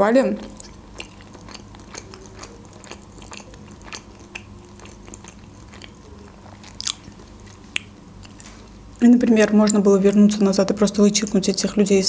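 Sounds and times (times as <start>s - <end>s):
person chewing food: 0.5s - 8.8s.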